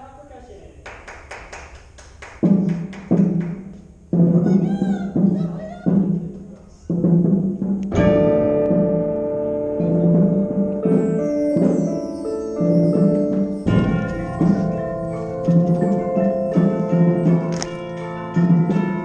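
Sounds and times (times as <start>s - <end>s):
loud percussion hits: 1.6s - 19.0s
low booming tone: 7.8s - 17.9s
ringing held chord: 8.1s - 19.0s.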